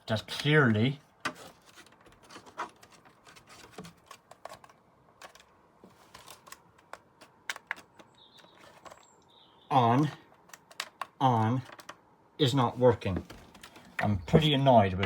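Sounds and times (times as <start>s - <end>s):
plastic clicks and taps: 6.3s - 9.0s, 10.0s - 12.0s.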